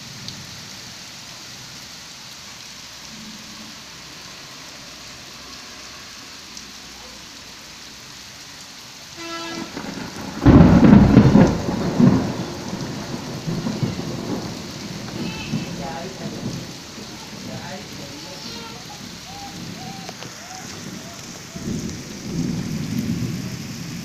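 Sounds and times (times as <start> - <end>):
steady rain: 0.0 - 24.0
thunder clap rumbling: 9.2 - 24.0.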